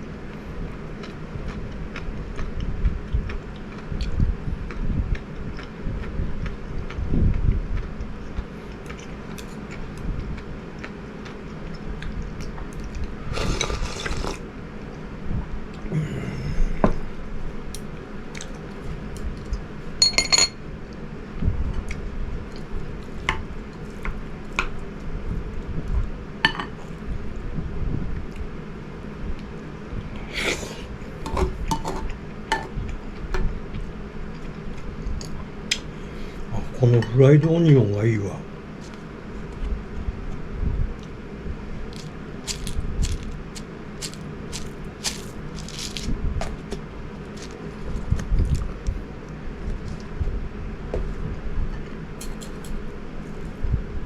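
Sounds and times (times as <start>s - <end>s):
utensils clinking on a dish: 20.0s - 20.6s.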